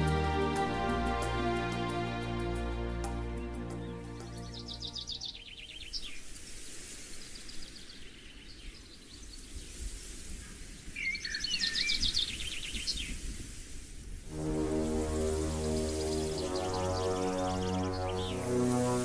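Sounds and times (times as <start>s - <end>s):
birds singing trills: 3.7s - 6.2s, 11.0s - 13.1s.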